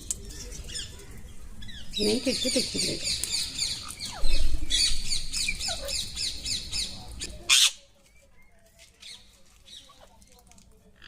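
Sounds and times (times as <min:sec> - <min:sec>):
parrots squawking: 0:01.7 - 0:06.9, 0:07.5 - 0:07.8.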